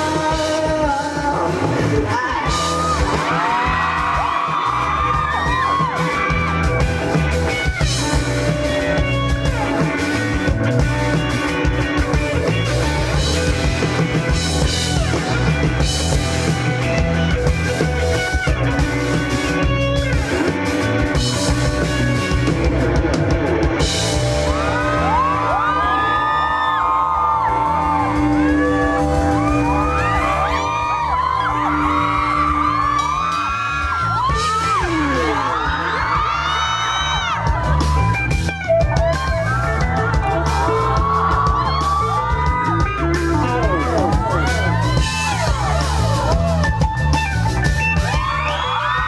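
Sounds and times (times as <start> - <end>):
person singing: 0.0 - 3.8
live rock band playing: 0.0 - 49.0.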